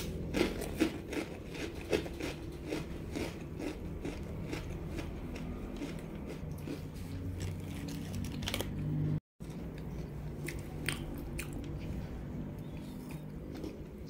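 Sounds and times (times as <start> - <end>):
close chewing of snack food: 0.0 - 14.0.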